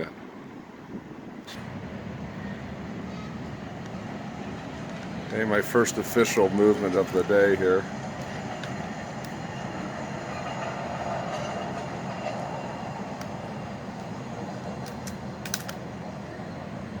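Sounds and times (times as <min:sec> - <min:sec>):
train rumbling on tracks: 0:00.0 - 0:17.0
sharp clicks: 0:08.2 - 0:09.4, 0:14.8 - 0:15.8.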